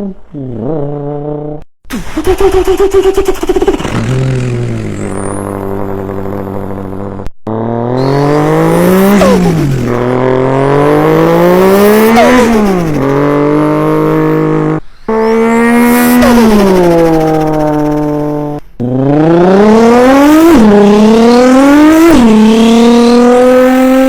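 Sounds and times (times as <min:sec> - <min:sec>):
vocal impression of car engine: 0:01.5 - 0:19.3.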